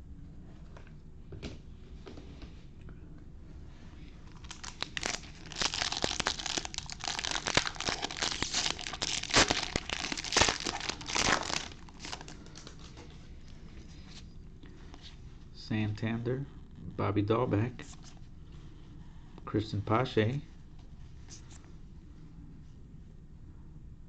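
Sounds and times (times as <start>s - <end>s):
foil wrapper tearing and crinkling: 4.3s - 13.0s.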